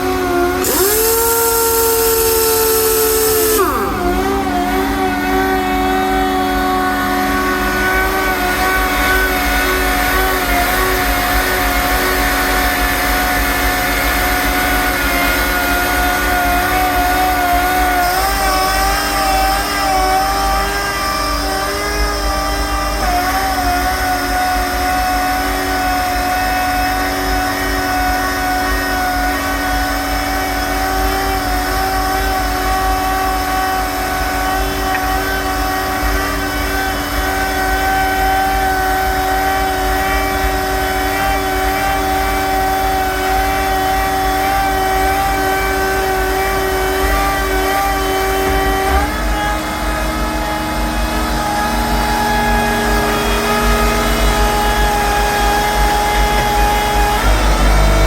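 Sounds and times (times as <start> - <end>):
air compressor whining: 0.0 - 58.0
air hissing: 0.6 - 19.4
gliding tone: 0.6 - 21.0, 51.8 - 58.0.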